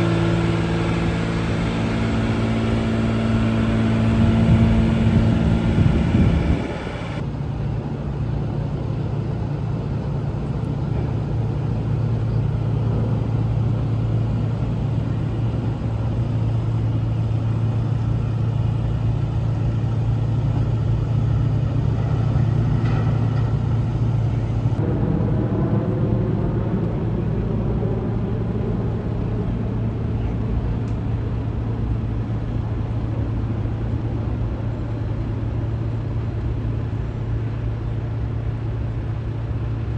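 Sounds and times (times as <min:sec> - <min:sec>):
dump truck low hum: 0:00.0 - 0:24.8.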